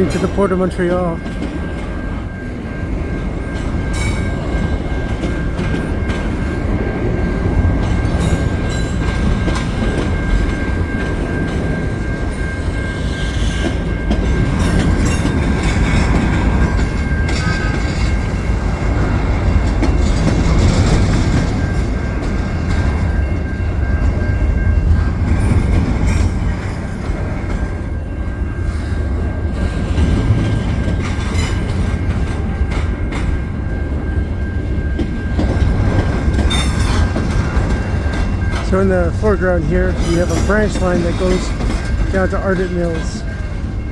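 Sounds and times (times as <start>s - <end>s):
freight train rumbling past: 0.0s - 43.9s
wheels clacking over rails: 0.0s - 43.9s.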